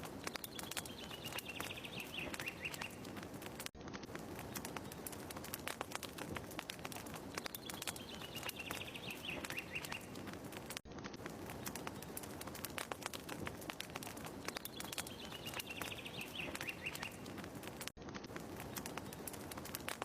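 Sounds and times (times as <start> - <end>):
wood fire crackling: 0.0 - 20.0
bird chirping: 0.2 - 3.2, 7.3 - 10.3, 14.4 - 17.4.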